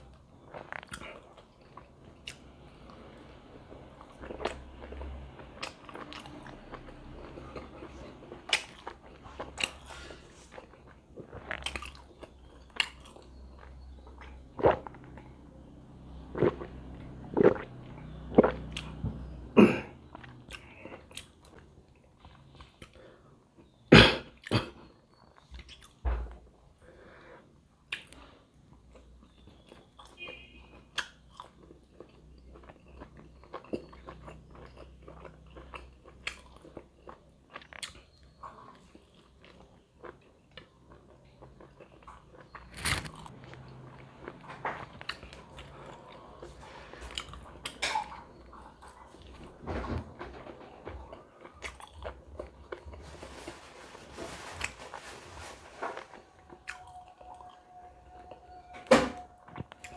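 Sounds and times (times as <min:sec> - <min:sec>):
person chewing and biting: 0:08.5 - 0:13.2, 0:39.0 - 0:46.0.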